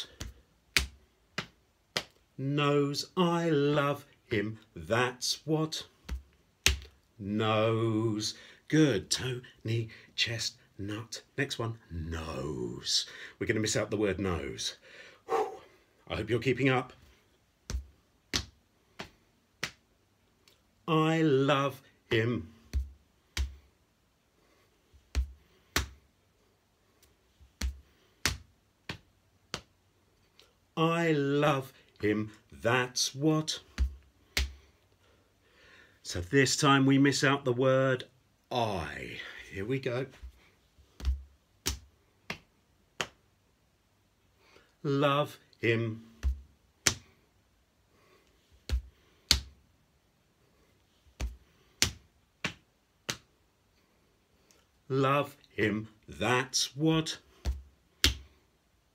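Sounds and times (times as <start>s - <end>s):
hands slapping the body: 0.0s - 2.2s, 6.0s - 7.0s, 17.6s - 20.6s, 22.1s - 23.7s, 25.0s - 26.0s, 27.0s - 29.8s, 33.6s - 34.7s, 40.1s - 43.2s, 46.1s - 47.2s, 48.6s - 49.6s, 51.1s - 53.3s, 57.4s - 58.4s.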